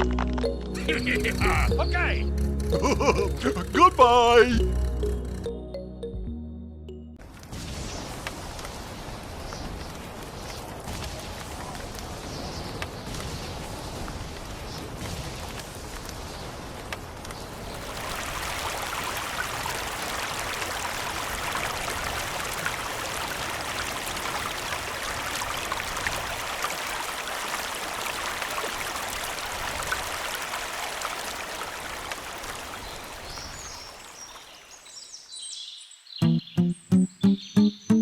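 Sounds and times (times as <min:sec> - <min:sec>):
running water rushing: 0:17.6 - 0:34.5.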